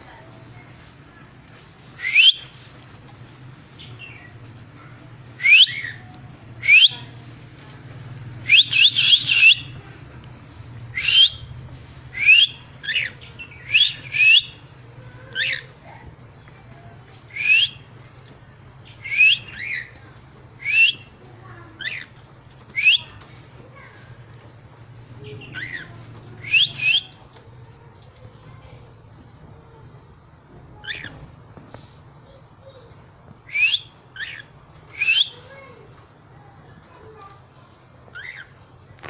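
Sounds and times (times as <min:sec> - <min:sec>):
cockatiels whistling: 0:08.5 - 0:09.7, 0:10.9 - 0:11.4, 0:19.0 - 0:19.9, 0:20.6 - 0:21.1, 0:26.4 - 0:27.1, 0:33.5 - 0:35.4.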